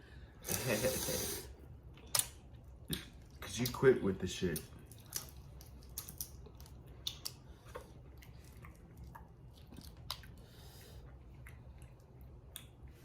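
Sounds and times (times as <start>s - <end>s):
chewing: 4.6s - 13.0s.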